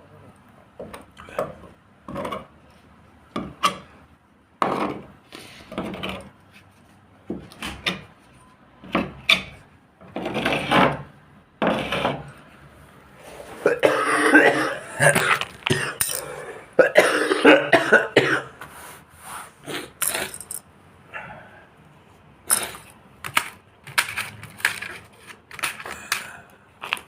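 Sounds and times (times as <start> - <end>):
rubbing and scraping strokes: 18.6 - 20.0.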